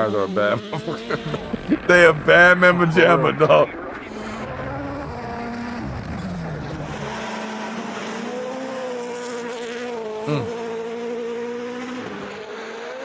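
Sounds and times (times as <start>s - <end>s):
rally car engine at high revs: 0.0s - 3.2s, 3.8s - 13.0s.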